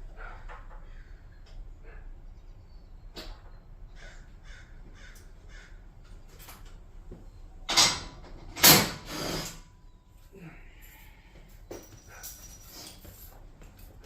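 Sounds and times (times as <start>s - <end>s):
crow cawing: 4.0s - 5.9s.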